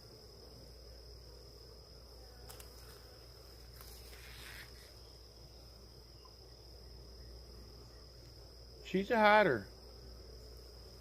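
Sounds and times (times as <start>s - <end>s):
high-pitched insect trill: 0.0s - 11.0s
honeybees buzzing: 0.0s - 11.0s
brief rustle: 3.7s - 4.9s.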